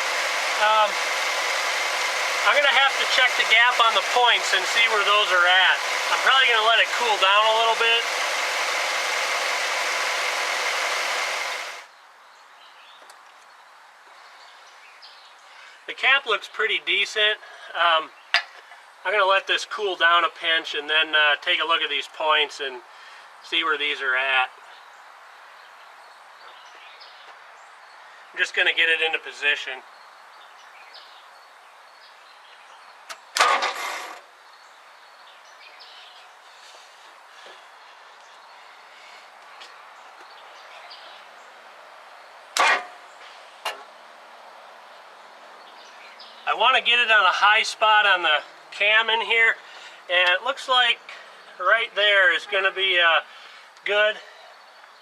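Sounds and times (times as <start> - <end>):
car engine running with hiss: 0.0 - 11.9
car starter cranking engine: 33.3 - 34.3.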